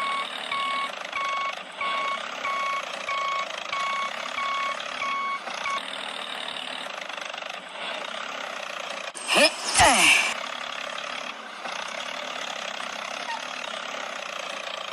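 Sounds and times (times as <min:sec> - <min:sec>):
vehicle reversing alarm beeping: 0:00.0 - 0:05.8
engine rumble: 0:00.0 - 0:14.9.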